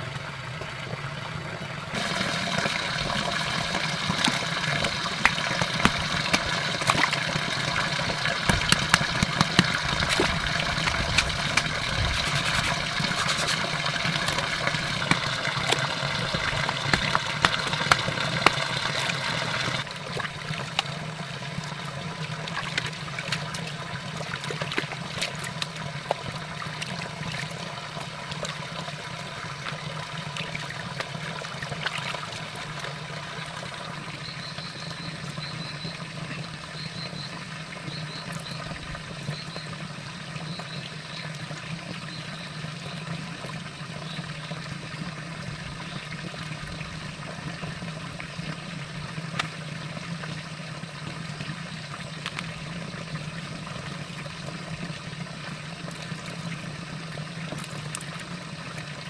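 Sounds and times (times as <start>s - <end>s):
constant low hum: 0.0s - 59.0s
running water: 0.0s - 59.0s.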